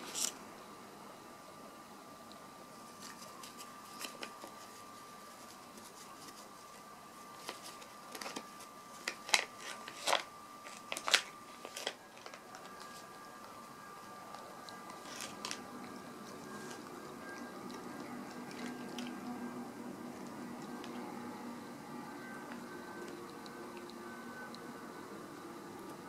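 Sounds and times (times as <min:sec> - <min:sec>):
cat crunching dry treats: 0:07.4 - 0:13.0, 0:14.3 - 0:15.7, 0:16.3 - 0:19.2
faint steady tone: 0:11.4 - 0:26.0.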